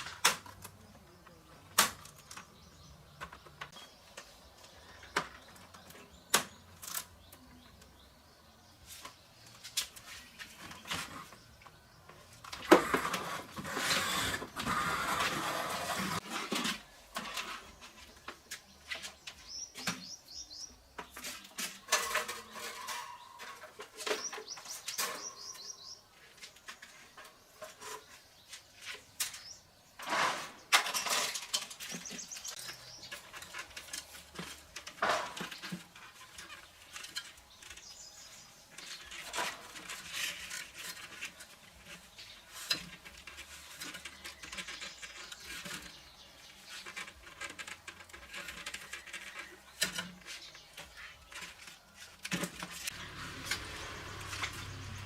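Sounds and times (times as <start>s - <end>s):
hands clicking and scraping small parts: 30.8s - 54.8s.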